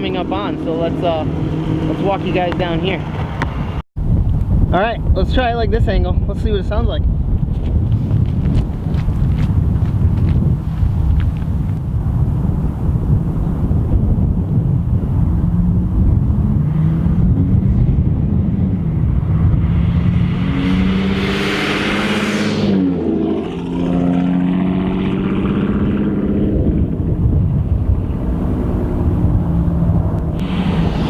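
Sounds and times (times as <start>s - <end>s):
car exhaust under power: 7.8s - 31.0s.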